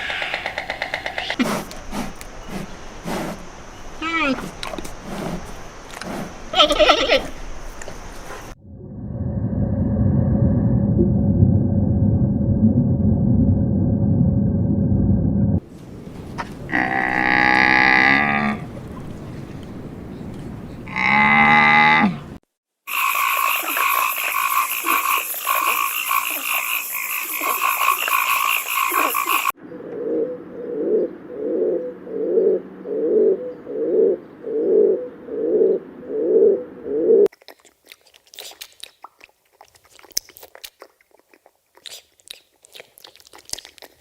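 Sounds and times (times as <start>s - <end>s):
low croaks: 0.0s - 6.6s, 8.4s - 37.3s
buzzing animal chorus: 16.0s - 20.0s, 20.8s - 29.6s.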